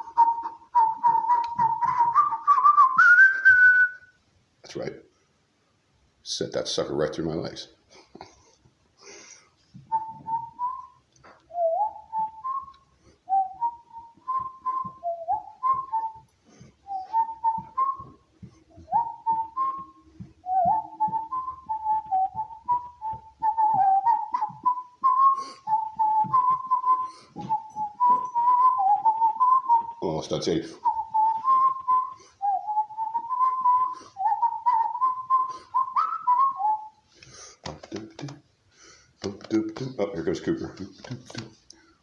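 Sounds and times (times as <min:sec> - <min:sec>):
person whistling a tune: 0:00.0 - 0:04.2, 0:09.8 - 0:37.4.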